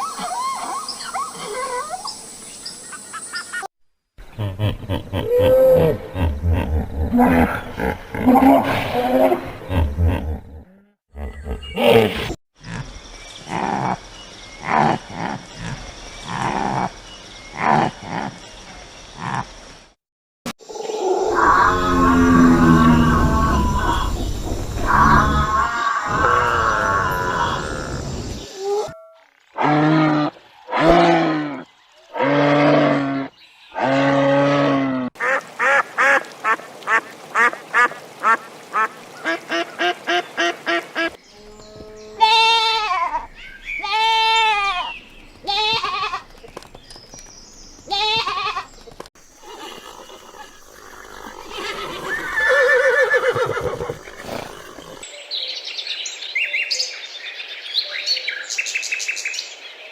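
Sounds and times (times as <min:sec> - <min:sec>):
animal calling: 0:49.3 - 0:55.1.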